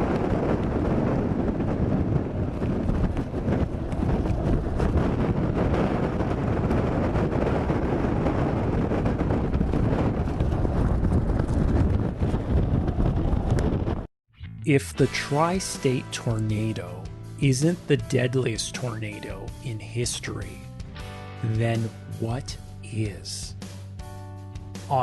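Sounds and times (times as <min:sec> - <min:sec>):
strong wind rushing: 0:00.0 - 0:14.1.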